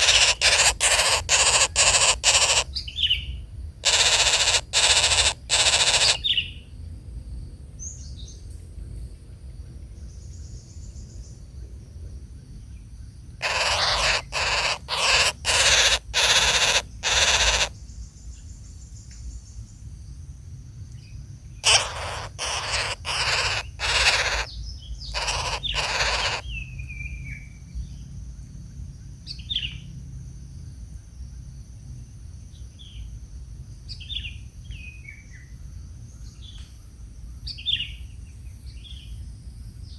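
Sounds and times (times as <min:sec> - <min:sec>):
harsh rasping bird calls: 0:00.0 - 0:03.2, 0:03.8 - 0:06.4, 0:13.4 - 0:17.8, 0:21.6 - 0:26.6
small birds chirping: 0:00.0 - 0:06.6, 0:13.4 - 0:19.2, 0:21.0 - 0:27.5.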